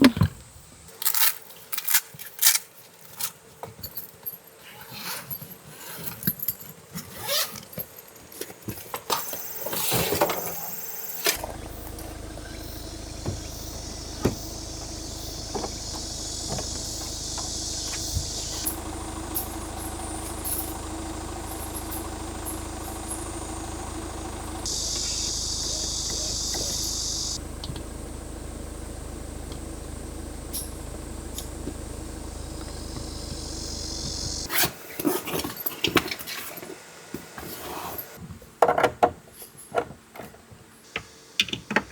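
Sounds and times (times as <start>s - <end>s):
car engine and road rumble: 10.8s - 34.5s
sharp clicks and knocks: 13.0s - 34.5s.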